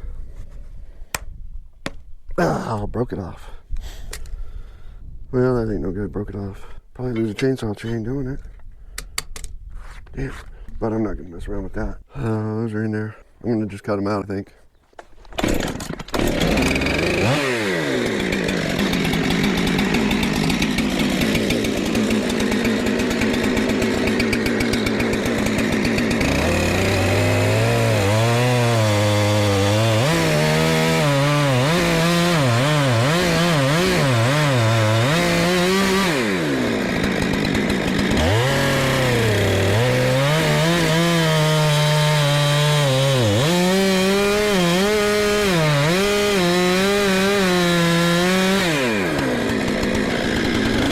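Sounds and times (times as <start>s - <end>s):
chainsaw cutting log: 15.0s - 50.9s.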